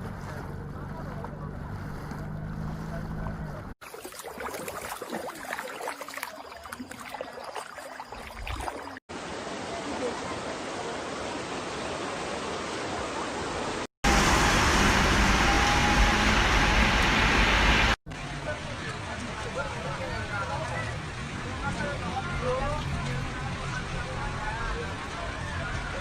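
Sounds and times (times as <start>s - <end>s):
heavy low rumble: 0.0s - 3.8s
floodwater roaring: 0.0s - 26.0s.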